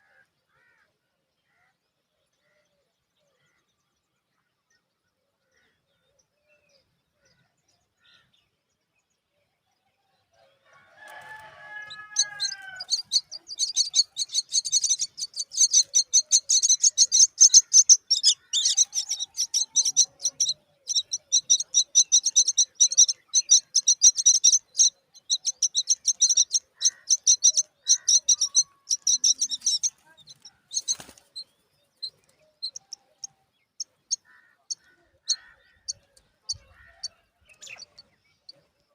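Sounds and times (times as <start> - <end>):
baby birds chirping: 11.1 - 38.6.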